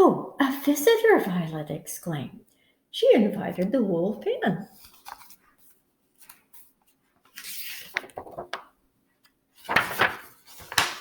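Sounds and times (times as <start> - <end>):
book page turning: 4.8 - 11.0
paper crackling: 4.8 - 11.0
paper rustling: 4.8 - 11.0.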